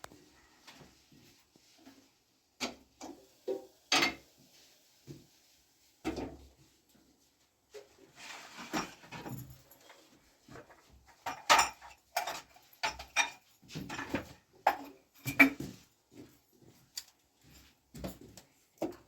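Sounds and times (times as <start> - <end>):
objects knocking and scraping: 7.7 - 15.9.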